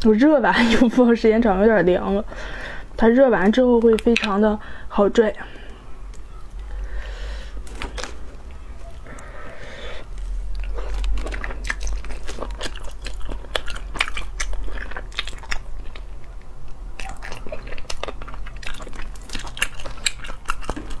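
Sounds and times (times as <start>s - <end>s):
chewing with mouth clicks: 9.9s - 21.0s.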